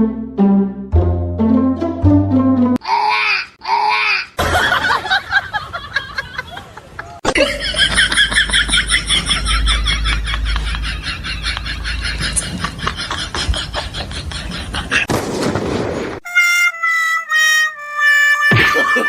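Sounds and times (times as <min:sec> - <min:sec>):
person laughing loudly: 0:04.4 - 0:15.1, 0:18.4 - 0:19.0.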